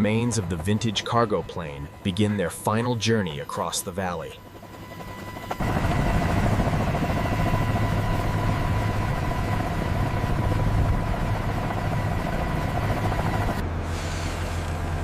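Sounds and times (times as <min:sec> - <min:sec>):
heavy engine droning: 0:12.1 - 0:15.0.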